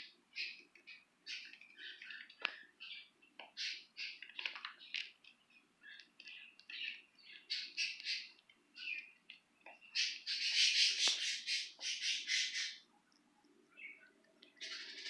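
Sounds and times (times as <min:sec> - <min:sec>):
budgerigars chirping: 0:00.4 - 0:04.2, 0:05.8 - 0:09.1, 0:09.9 - 0:12.8, 0:14.6 - 0:15.0.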